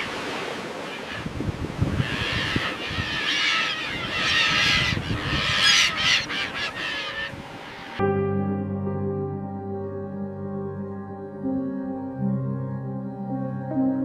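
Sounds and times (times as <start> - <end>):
birds calling harshly: 0.0 - 8.0.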